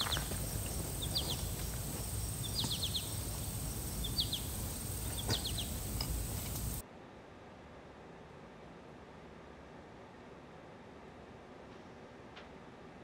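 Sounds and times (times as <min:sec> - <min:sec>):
small bird chirping: 0:00.0 - 0:06.8
steady high-pitched whine: 0:00.0 - 0:11.6.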